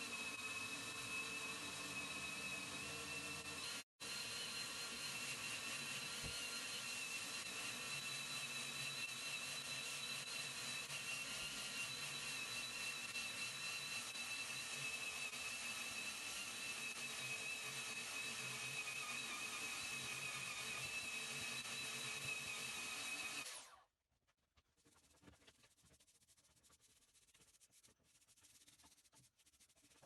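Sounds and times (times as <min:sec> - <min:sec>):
power tool whining: 0:00.0 - 0:23.8.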